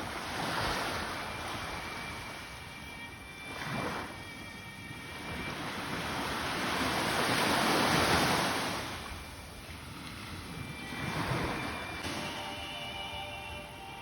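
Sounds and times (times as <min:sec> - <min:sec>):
sea waves washing onto shore: 0:00.0 - 0:02.6, 0:05.3 - 0:13.4.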